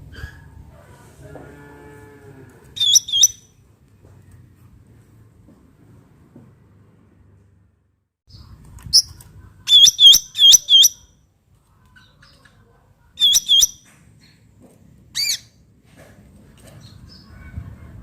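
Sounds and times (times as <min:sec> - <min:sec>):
bird calling sharp notes: 0:02.8 - 0:03.4, 0:09.7 - 0:11.1, 0:13.2 - 0:13.8.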